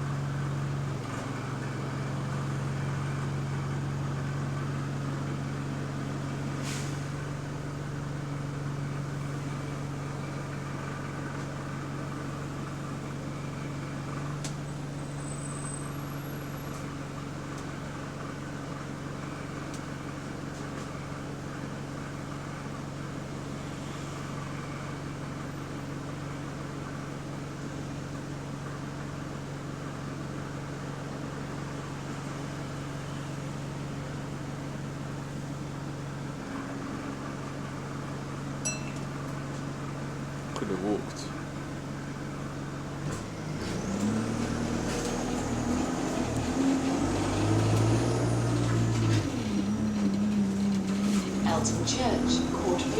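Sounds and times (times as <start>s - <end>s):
bus engine hum: 0.0s - 52.9s
air conditioning running: 51.1s - 52.9s.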